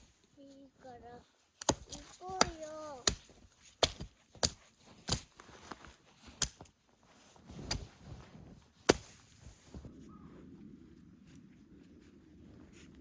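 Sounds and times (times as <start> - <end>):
wood chopping strikes: 1.6 - 5.3, 8.9 - 9.2.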